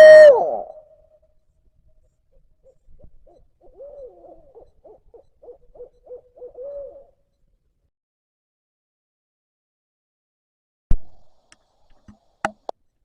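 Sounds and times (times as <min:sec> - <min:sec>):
owl hooting: 0:00.0 - 0:01.0, 0:02.3 - 0:07.3.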